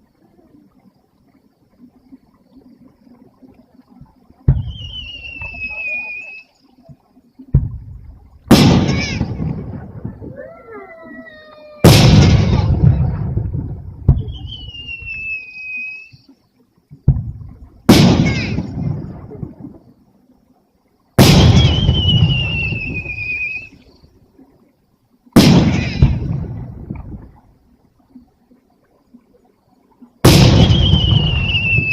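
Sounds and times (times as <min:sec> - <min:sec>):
fireworks bursting with booms: 0:04.4 - 0:06.0, 0:07.5 - 0:10.4, 0:11.8 - 0:15.4, 0:17.0 - 0:19.8, 0:21.2 - 0:23.7, 0:25.4 - 0:27.3, 0:30.2 - 0:31.9
high falling whistling tones: 0:04.6 - 0:06.6, 0:14.2 - 0:16.3, 0:21.4 - 0:23.8, 0:30.5 - 0:31.9
rolling rumble: 0:11.8 - 0:15.2.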